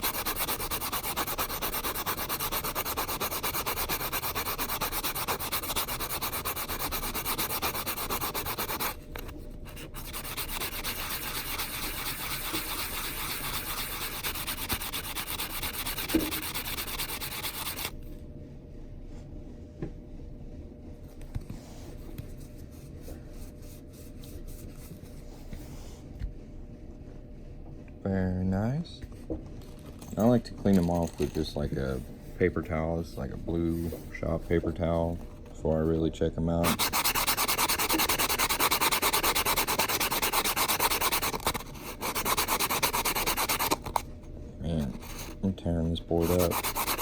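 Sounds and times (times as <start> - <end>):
metal ring sanded on nail file: 0.0 - 9.0, 9.7 - 17.9, 36.6 - 44.0, 46.2 - 47.0
steady low hum: 0.0 - 47.0.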